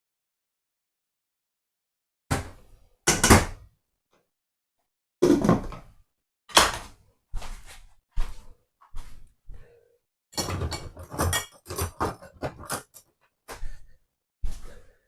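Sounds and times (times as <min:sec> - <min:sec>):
kitchenware knocking and clattering: 0:10.4 - 0:13.0.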